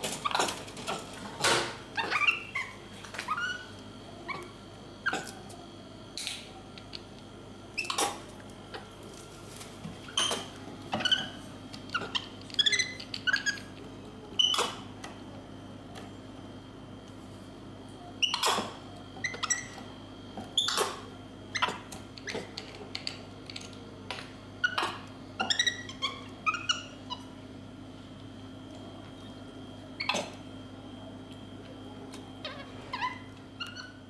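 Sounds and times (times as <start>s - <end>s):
animal squeaky calls: 2.0s - 3.7s, 24.6s - 27.3s.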